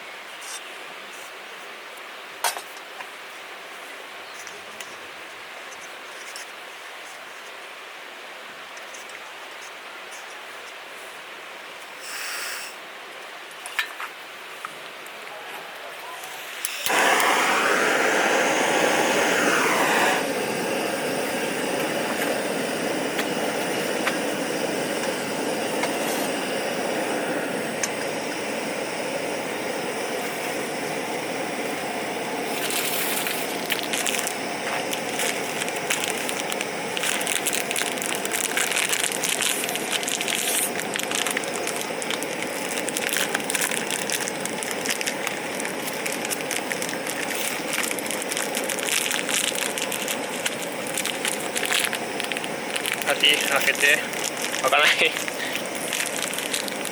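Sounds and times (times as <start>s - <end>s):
dense crackling clicks: 32.5s - 56.9s.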